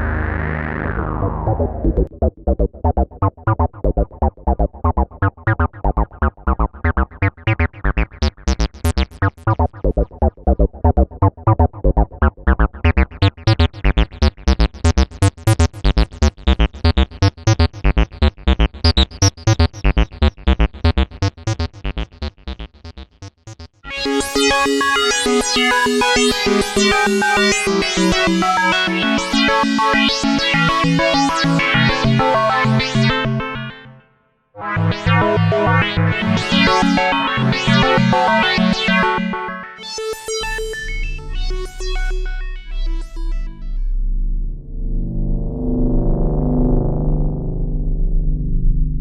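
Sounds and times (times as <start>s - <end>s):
synthesizer plucked notes: 0.0s - 18.0s, 23.0s - 48.6s
dense sustained synth pad: 40.3s - 49.0s.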